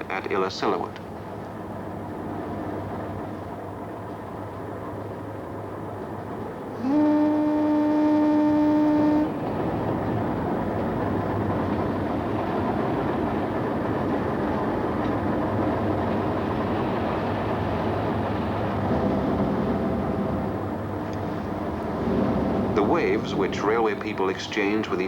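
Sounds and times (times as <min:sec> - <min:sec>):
train rumbling on rails: 0:00.0 - 0:25.0
locomotive horn blast: 0:06.7 - 0:09.8.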